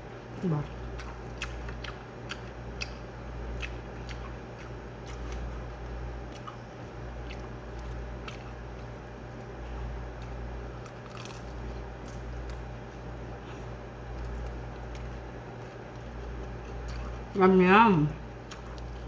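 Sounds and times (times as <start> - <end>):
steady low hum: 0.0 - 19.0
close-up chewing food: 0.2 - 17.4, 18.2 - 19.0.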